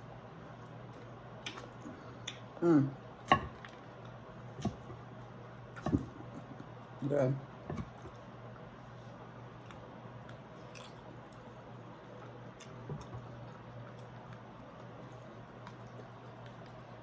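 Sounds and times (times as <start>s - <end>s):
steady low hum: 0.0s - 17.0s
chewing and crunching food: 9.5s - 17.0s.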